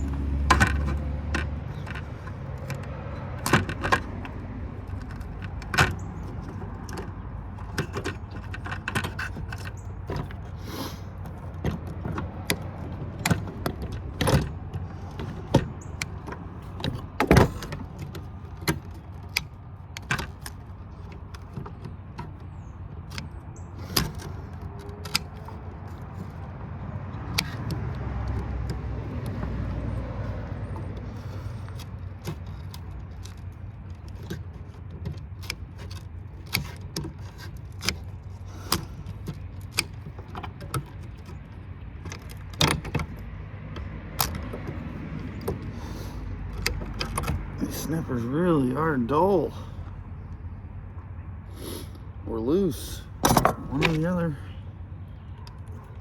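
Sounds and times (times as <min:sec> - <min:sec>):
hand tools clanking on scrap metal: 0:52.4 - 0:54.6.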